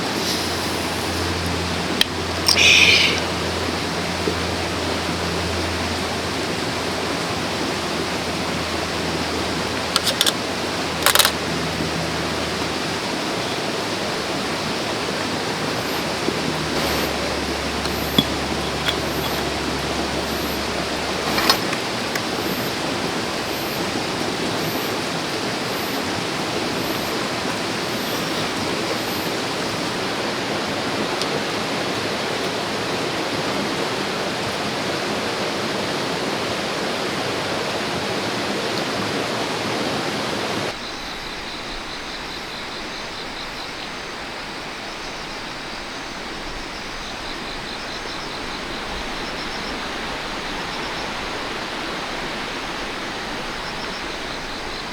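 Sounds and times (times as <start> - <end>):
stream water rushing: 0.0 - 54.9
faint rapid high chirping: 2.5 - 3.4.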